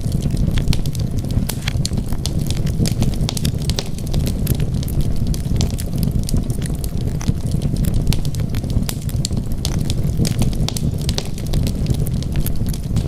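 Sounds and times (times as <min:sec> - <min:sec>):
fire flames rumbling: 0:00.0 - 0:13.0
wood fire crackling and popping: 0:00.0 - 0:13.0.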